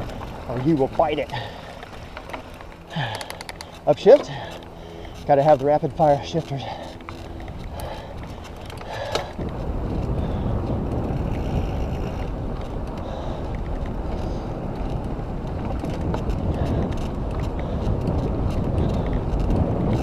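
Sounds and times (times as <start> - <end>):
tyres rolling over dirt: 0.0 - 12.8
wind on microphone: 6.6 - 20.0.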